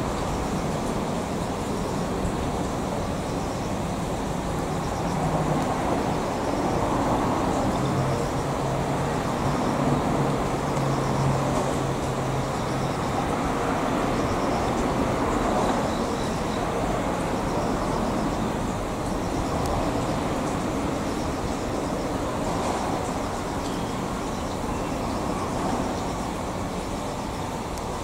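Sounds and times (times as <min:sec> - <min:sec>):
train rolling rumble: 0:00.0 - 0:28.0.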